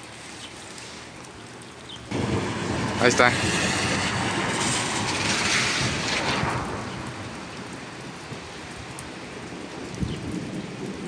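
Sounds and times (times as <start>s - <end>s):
rain hissing: 0.0s - 11.0s
thunder rumbling: 2.1s - 11.0s.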